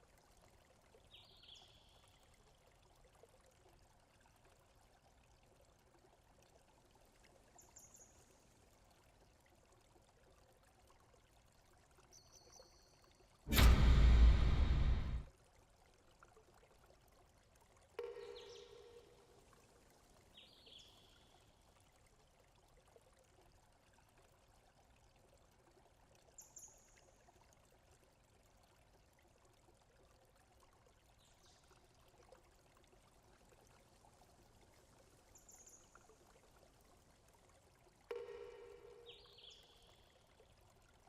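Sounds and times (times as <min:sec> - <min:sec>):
short tone: 0:13.5 - 0:15.2.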